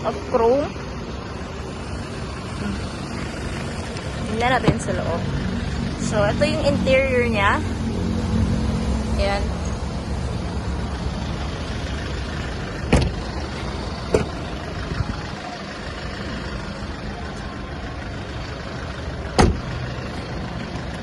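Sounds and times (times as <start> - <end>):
diesel engine idling: 0.0 - 21.0
sharp knocks: 19.4 - 19.6.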